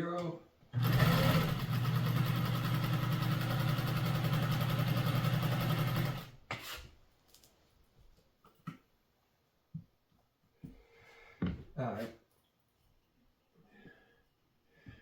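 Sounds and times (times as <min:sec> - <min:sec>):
sewing machine running: 0:00.8 - 0:06.4.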